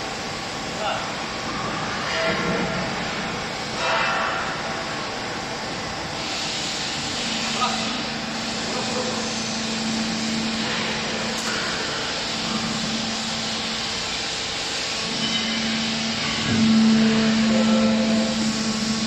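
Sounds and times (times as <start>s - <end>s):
hydraulic baler humming: 6.5s - 19.0s.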